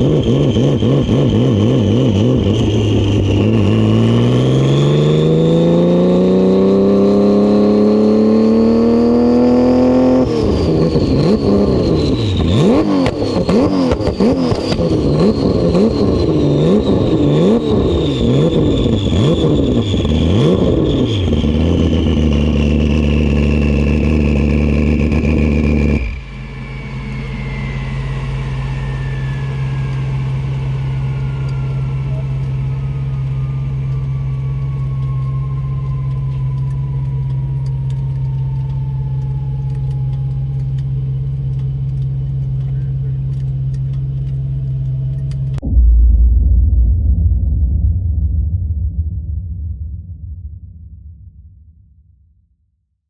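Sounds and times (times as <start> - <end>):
race car engine revving: 0.0 - 35.2
thin high whistle: 25.9 - 37.2.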